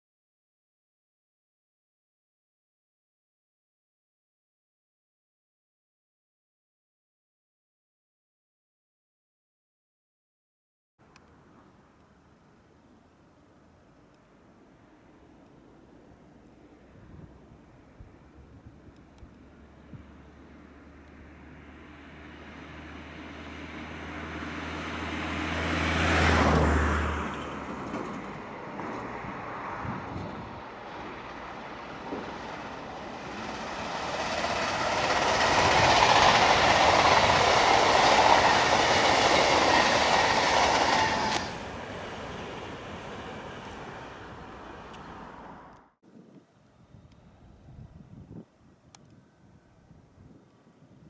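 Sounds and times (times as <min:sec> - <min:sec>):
train wheels rolling on rails: 0:11.0 - 0:45.8
electric train hum: 0:11.0 - 0:45.9.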